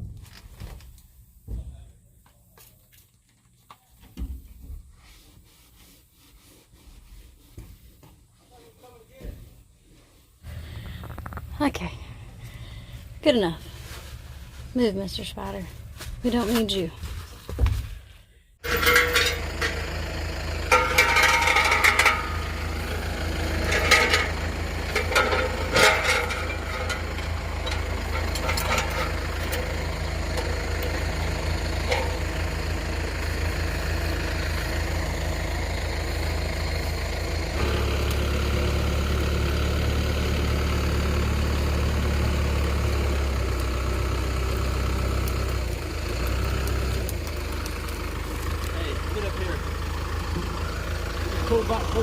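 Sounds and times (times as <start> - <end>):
vehicle engine idling: 10.4 - 52.0
short metallic clanks: 18.6 - 19.8, 20.7 - 22.6, 23.6 - 29.7.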